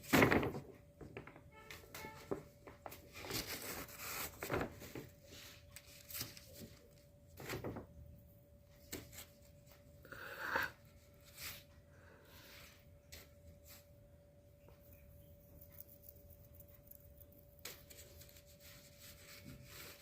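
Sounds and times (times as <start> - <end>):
paper bag rustling: 0.0 - 8.1
faint steady hum: 0.0 - 20.0.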